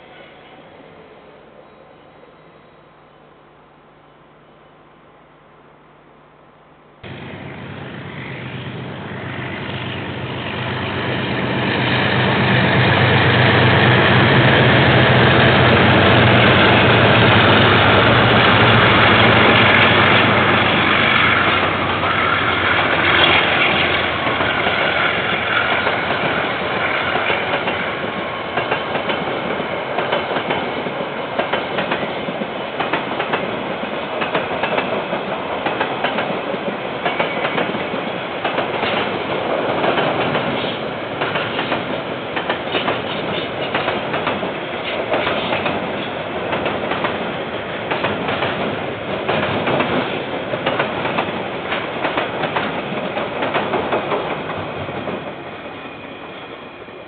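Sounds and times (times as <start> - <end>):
diesel locomotive engine hum: 7.0 - 57.0
wheels clacking over rail joints: 14.7 - 55.2.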